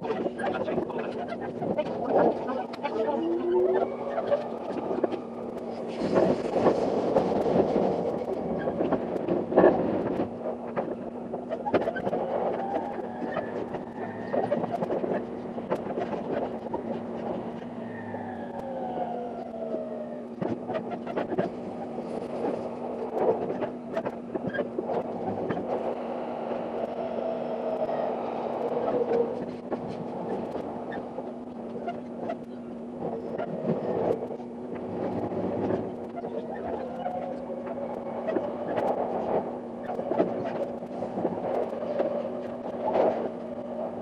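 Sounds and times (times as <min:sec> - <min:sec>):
train running noise rush: 0:00.0 - 0:44.0.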